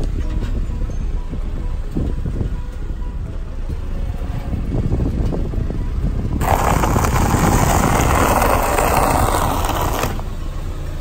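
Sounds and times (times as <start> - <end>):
car low rumble: 0.0 - 11.0
tyre crunching dry cereal: 6.4 - 10.1.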